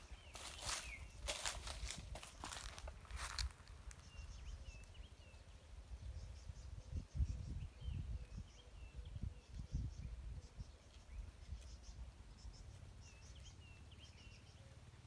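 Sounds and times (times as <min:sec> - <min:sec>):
small birds chirping: 0:00.0 - 0:15.0
wind buffeting microphone: 0:05.8 - 0:11.8.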